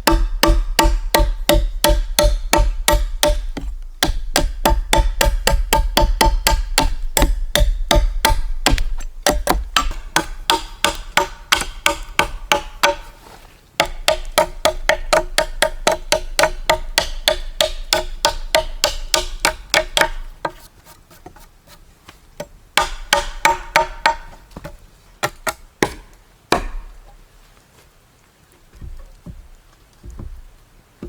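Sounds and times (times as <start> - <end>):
tool knocking on wood: 0.0 - 13.0, 30.0 - 30.4.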